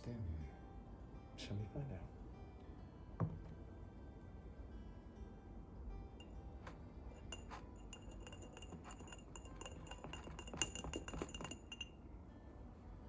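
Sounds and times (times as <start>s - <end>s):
metal spoon clinking against glass: 6.2s - 12.0s.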